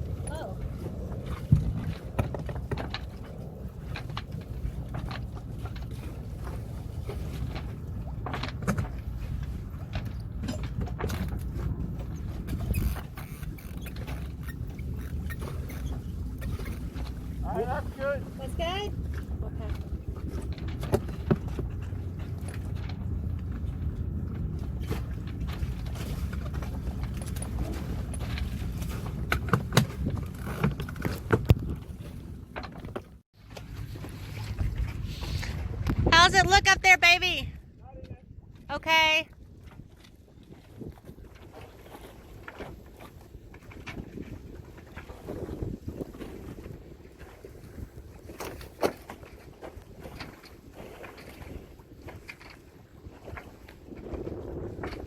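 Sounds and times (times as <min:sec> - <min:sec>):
wind rumbling on microphone: 0:00.0 - 0:55.0
low rumble: 0:14.2 - 0:29.4.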